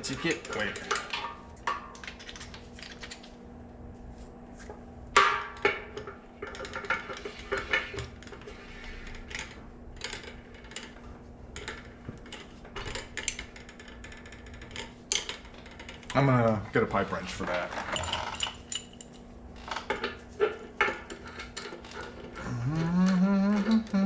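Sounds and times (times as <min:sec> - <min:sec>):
tools clanking on metal keg: 0:00.0 - 0:02.0.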